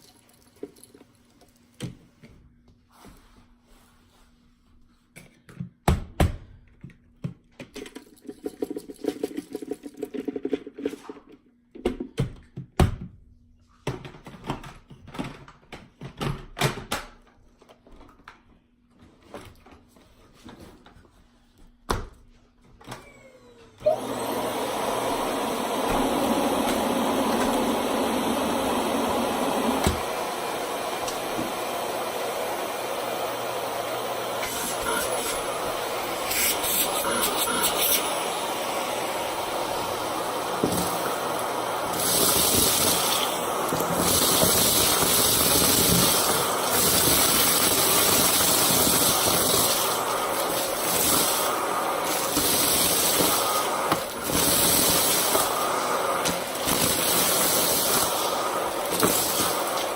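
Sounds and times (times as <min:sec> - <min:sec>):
vacuum cleaner motor running: 0:22.8 - 0:59.9
vacuum cleaner being handled: 0:23.9 - 0:59.9.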